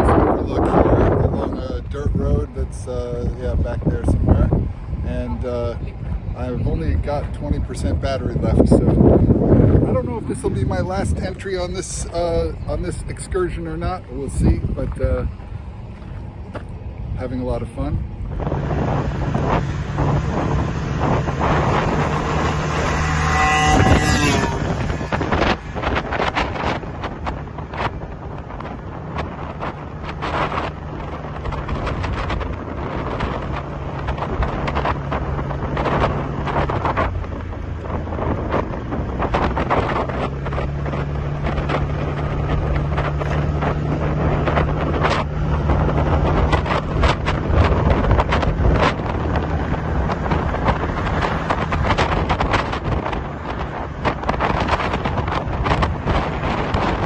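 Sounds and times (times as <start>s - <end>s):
wind buffeting microphone: 0.0s - 57.0s
motorbike engine running: 18.3s - 57.0s.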